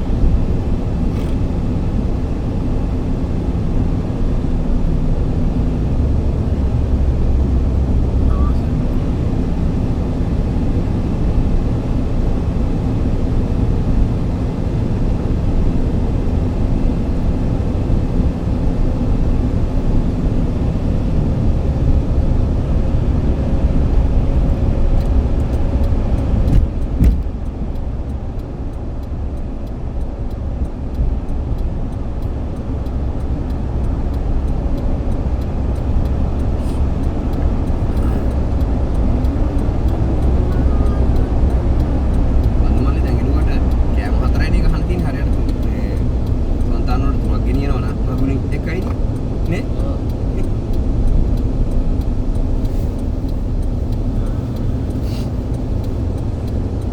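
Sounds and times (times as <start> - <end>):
vehicle rumbling: 0.0 - 56.9
sharp knock: 26.5 - 27.3.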